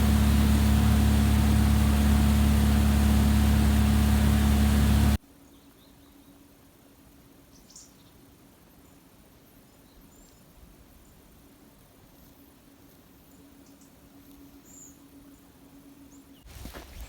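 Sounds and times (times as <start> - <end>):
mechanical hum with hiss: 11.4 - 17.0.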